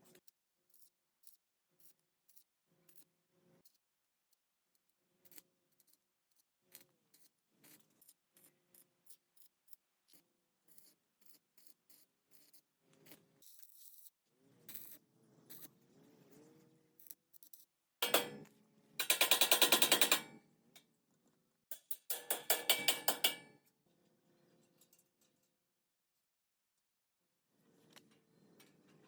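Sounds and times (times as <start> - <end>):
small clicks and ticks: 0.0 - 15.7, 17.0 - 17.7.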